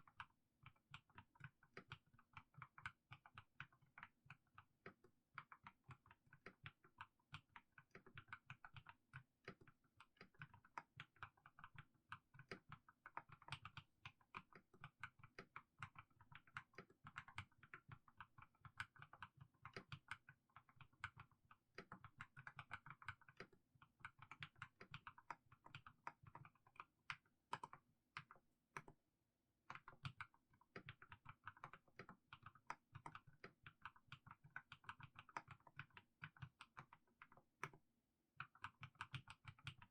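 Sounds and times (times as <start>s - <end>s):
soft keyboard keystroke clacks: 0.0s - 29.0s, 29.7s - 37.8s, 38.4s - 39.9s.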